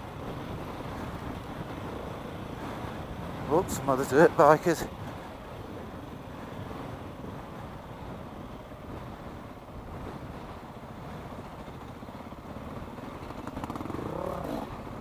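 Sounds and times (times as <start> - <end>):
wind on microphone: 0.0 - 15.0
motorcycle engine running: 10.0 - 15.0.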